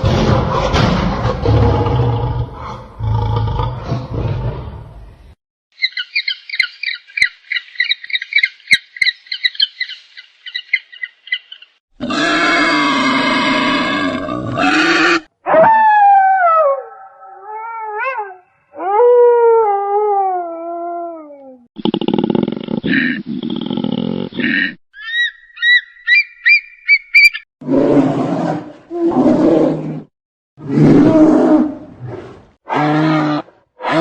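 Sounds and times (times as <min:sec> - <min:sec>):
rapid high-pitched animal chirping: 0:05.8 - 0:11.7, 0:24.4 - 0:27.4.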